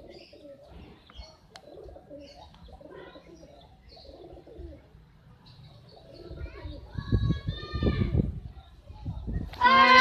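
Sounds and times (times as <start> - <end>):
pigeons cooing: 0.0 - 5.0.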